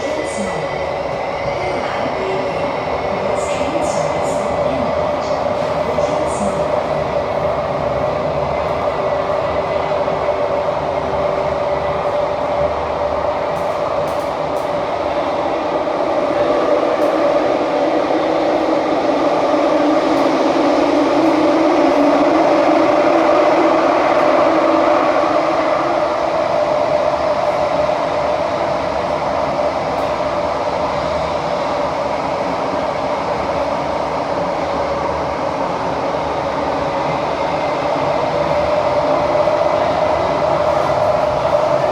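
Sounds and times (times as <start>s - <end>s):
train rumbling in tunnel: 0.0s - 41.9s.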